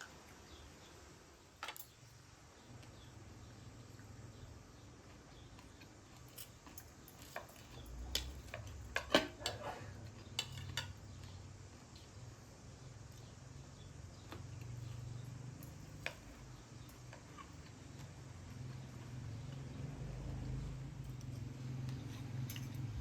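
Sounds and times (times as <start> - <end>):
cutlery and dishes clinking: 6.3 - 11.0, 22.2 - 23.0.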